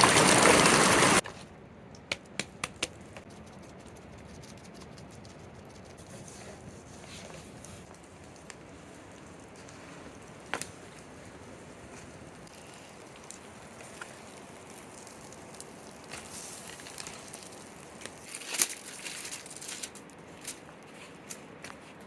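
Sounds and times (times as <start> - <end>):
campfire crackling: 0.0 - 1.2, 7.8 - 21.4.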